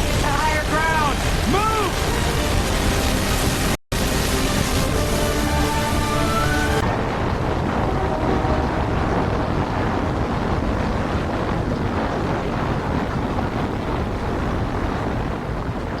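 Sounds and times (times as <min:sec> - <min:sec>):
floodwater flowing: 0:00.0 - 0:16.0
wind rushing: 0:00.0 - 0:16.0.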